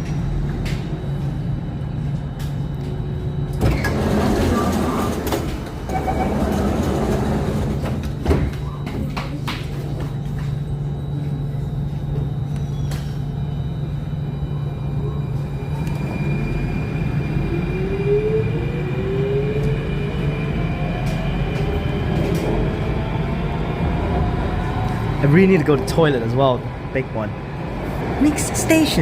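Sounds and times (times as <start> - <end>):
metro train hum: 0.0 - 29.0
traction motor whine rising: 14.7 - 26.1.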